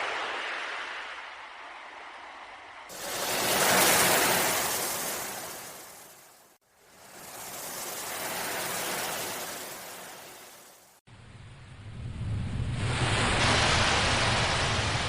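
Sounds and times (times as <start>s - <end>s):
ocean surf washing in: 2.9s - 11.0s, 12.2s - 15.0s.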